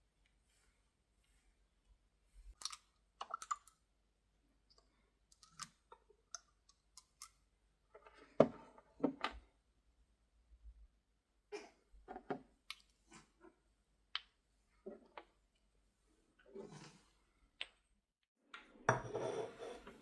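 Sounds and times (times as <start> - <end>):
clicks of small objects handled: 2.5 - 3.8.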